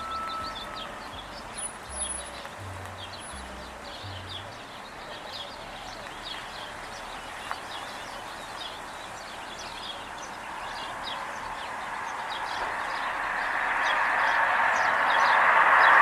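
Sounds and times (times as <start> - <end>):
rushing noise: 0.0 - 3.5, 10.4 - 16.0
small birds chirping: 0.0 - 16.0.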